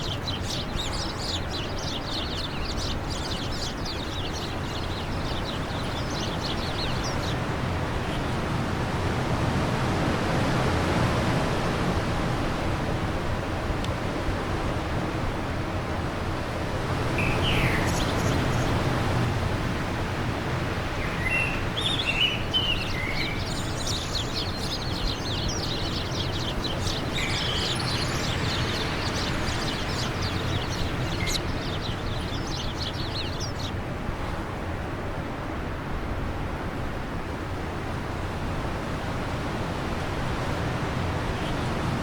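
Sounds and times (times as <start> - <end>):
songbirds chirping: 0.0 - 11.1, 16.6 - 34.9, 38.5 - 42.0
wind blowing: 0.0 - 42.0.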